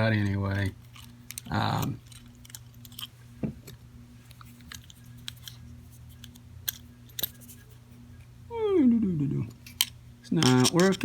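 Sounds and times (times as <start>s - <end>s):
steady low hum: 0.0s - 11.0s
padlock and tools clicking: 0.2s - 3.1s, 4.6s - 5.6s.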